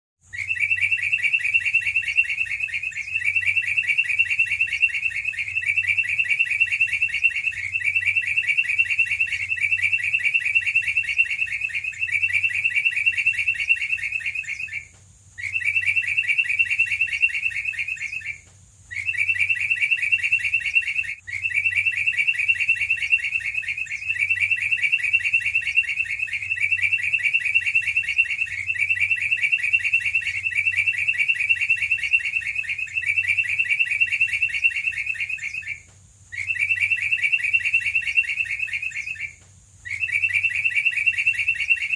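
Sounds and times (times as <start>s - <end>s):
bird song rapid high trill: 0.2s - 41.9s.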